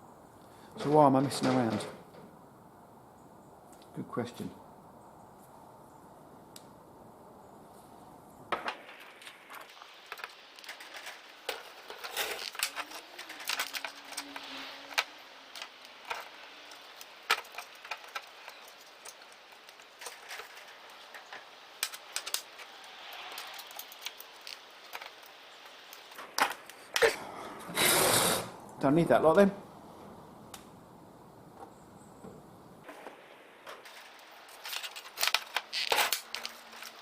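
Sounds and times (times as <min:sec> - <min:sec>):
small metal and plastic parts clinking: 0:09.0 - 0:26.8, 0:33.8 - 0:37.0.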